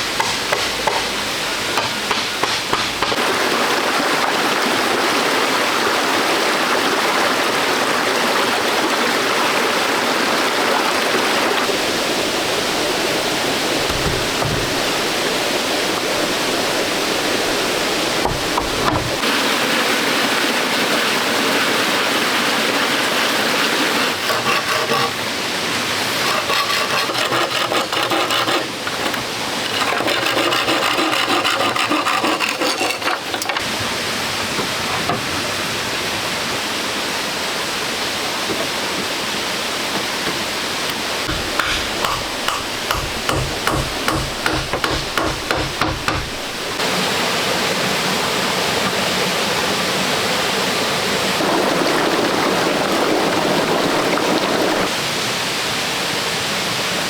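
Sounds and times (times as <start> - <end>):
knocking and scraping: 0.0 - 3.2, 13.6 - 15.2, 17.7 - 19.2, 41.2 - 46.8
running water: 0.0 - 57.0.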